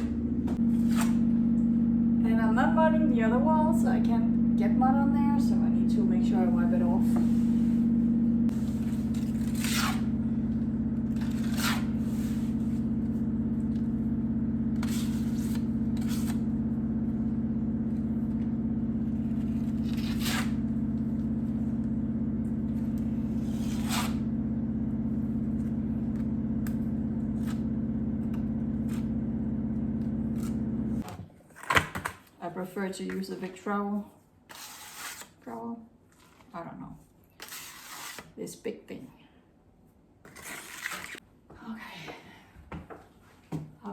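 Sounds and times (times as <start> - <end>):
steady low hum: 0.0 - 31.0
trowel scraping on a wall: 34.5 - 35.4, 37.4 - 38.4, 40.3 - 41.2.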